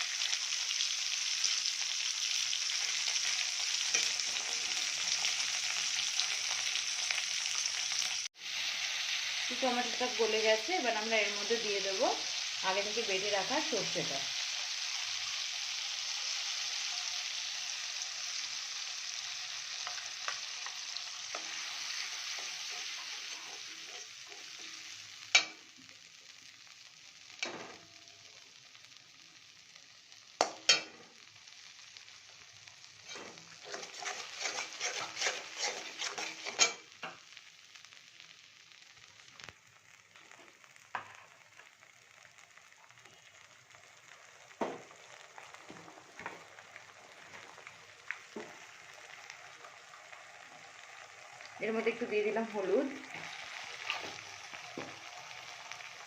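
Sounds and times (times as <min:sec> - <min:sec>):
oil sizzling in a pan: 0:00.0 - 0:56.0
spatula scraping and rattling: 0:33.0 - 0:36.9.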